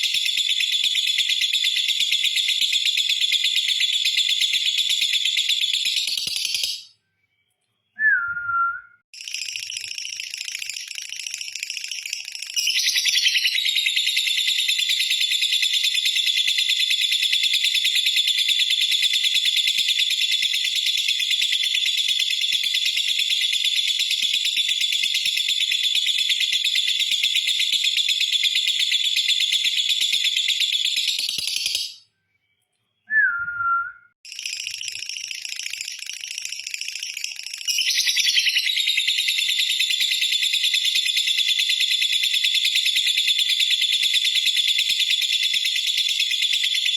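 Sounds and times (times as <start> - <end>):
falling whistle: 8.0 - 9.0, 33.1 - 34.2.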